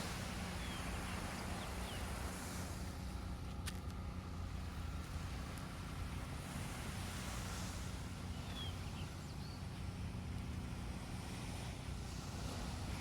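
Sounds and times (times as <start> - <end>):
surf hissing on beach: 0.0 - 3.0.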